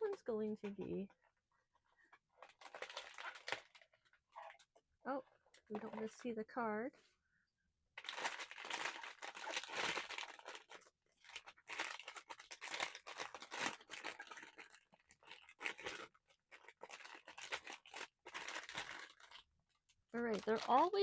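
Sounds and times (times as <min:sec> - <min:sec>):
packaging crinkling and tearing: 0:02.3 - 0:04.6, 0:08.0 - 0:19.5, 0:20.2 - 0:21.0.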